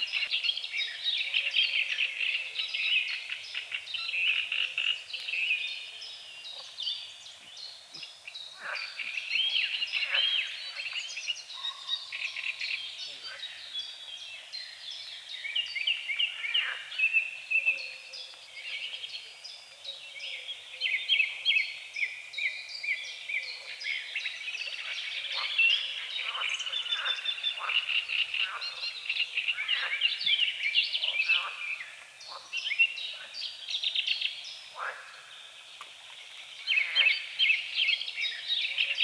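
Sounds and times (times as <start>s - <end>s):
songbirds chirping and trilling: 0.0s - 39.0s
frogs croaking: 8.3s - 14.0s, 15.9s - 18.0s, 23.5s - 33.4s, 34.7s - 35.6s, 36.6s - 39.0s.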